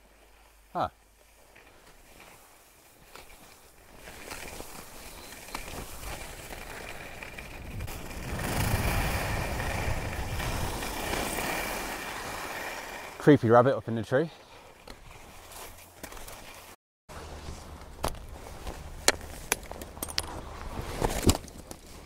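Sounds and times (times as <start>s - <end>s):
skis hissing on snow: 0.0s - 7.1s, 8.3s - 13.2s
wind on microphone: 7.5s - 11.0s.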